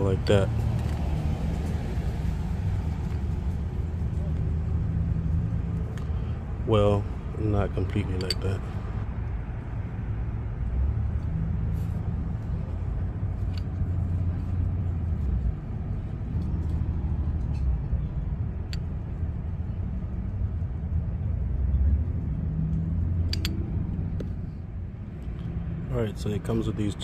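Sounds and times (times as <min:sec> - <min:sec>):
low outdoor rumble: 0:00.0 - 0:27.0
small parts clicking: 0:23.2 - 0:23.6.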